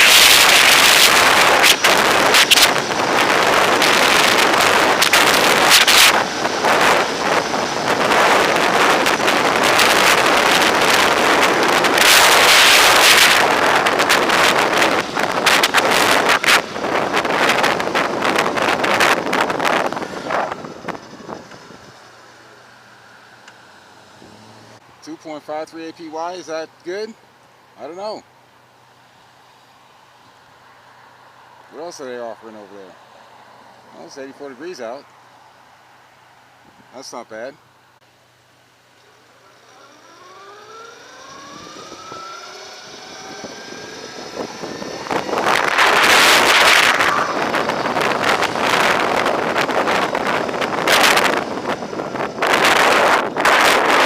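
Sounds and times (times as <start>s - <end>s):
wind buffeting microphone: 0.0s - 22.2s, 40.7s - 54.0s
electric motorcycle motor whine: 39.0s - 54.0s.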